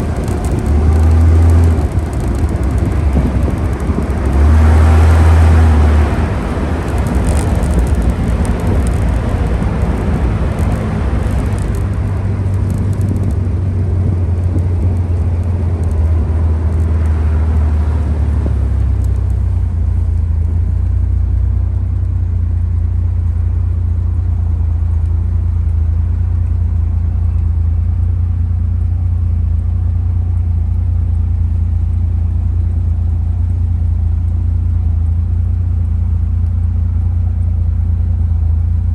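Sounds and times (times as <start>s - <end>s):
road and wind hiss: 0.0s - 21.9s
car engine drone: 0.0s - 38.9s.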